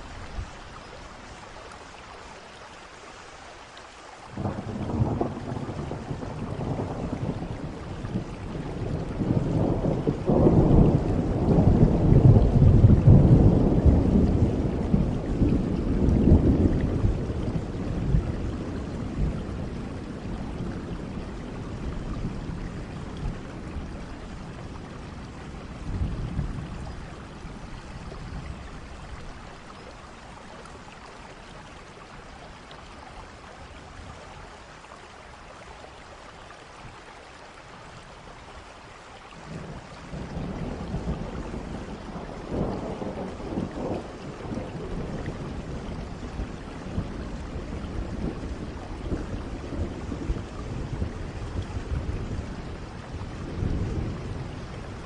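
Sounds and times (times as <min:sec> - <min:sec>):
steady rain: 0:00.0 - 0:55.0
thunder rolling: 0:04.4 - 0:23.9.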